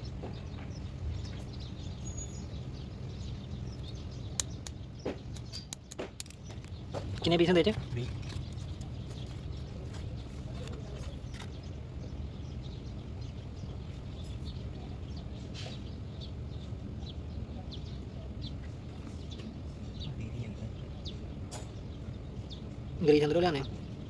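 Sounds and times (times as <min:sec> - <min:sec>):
small birds chirping: 0:00.0 - 0:24.0
steady low hum: 0:00.0 - 0:24.0
sharp metallic clicks: 0:03.8 - 0:07.4.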